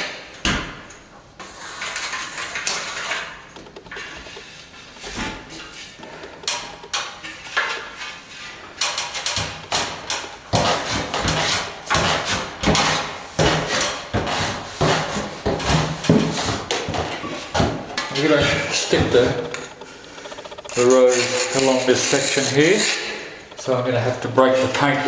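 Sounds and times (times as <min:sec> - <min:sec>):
tool scraping plaster: 0:01.4 - 0:25.0
hand tool striking plaster: 0:01.7 - 0:19.7.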